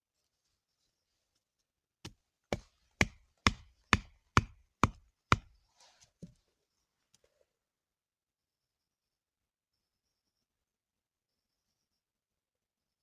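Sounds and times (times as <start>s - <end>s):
sharp knocks: 2.5s - 5.5s.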